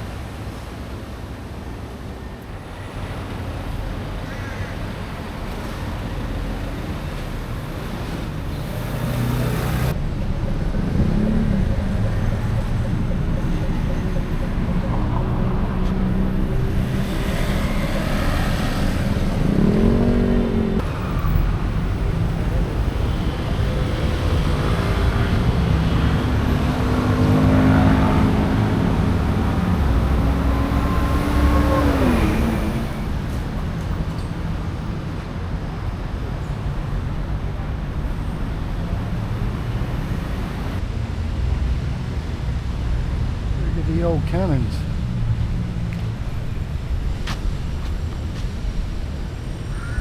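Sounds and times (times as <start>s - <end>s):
traffic rumble: 0.0s - 50.0s
engines revving: 5.0s - 35.1s
vehicle passing by: 5.6s - 34.1s.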